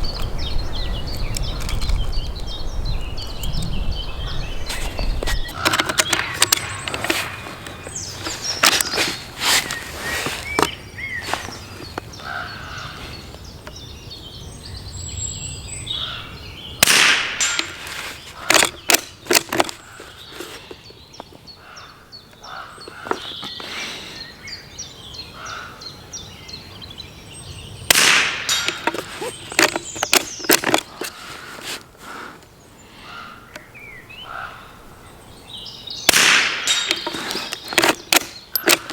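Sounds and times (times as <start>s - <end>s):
birds chirping faintly: 0.0s - 38.9s
rifle shots: 16.8s - 17.7s, 27.9s - 28.8s, 36.1s - 37.0s.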